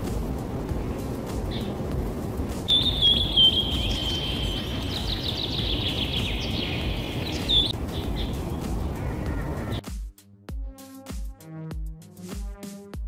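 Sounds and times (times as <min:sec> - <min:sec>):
low background hiss: 0:00.0 - 0:09.7
bird whistling and chirping: 0:02.7 - 0:08.4.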